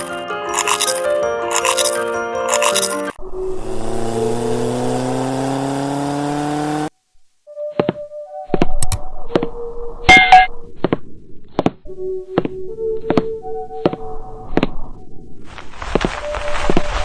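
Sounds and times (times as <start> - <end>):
engine revving: 3.2 - 6.9
sharp knocks and thunks: 7.8 - 9.5, 10.1 - 14.0.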